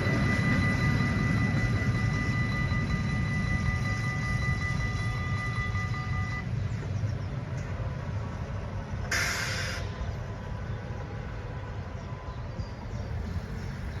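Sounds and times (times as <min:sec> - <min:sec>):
diesel locomotive rumbling: 0:00.0 - 0:14.0
air brake hiss: 0:09.1 - 0:09.9.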